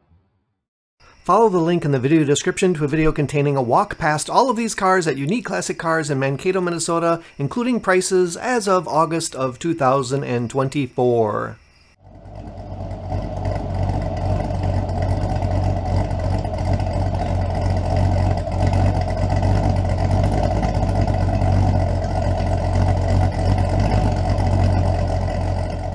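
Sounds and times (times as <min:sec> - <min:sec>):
pickup truck engine running: 0:12.0 - 0:25.9.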